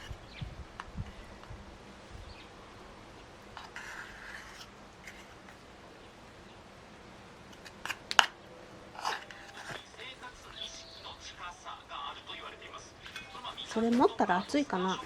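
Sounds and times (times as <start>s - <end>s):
soft rustle: 3.2s - 5.8s, 8.9s - 11.4s.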